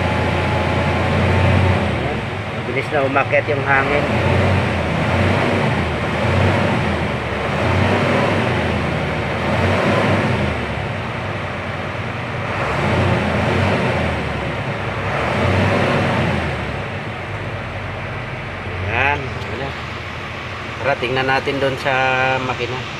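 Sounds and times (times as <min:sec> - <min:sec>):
diesel truck engine running: 0:00.0 - 0:22.9.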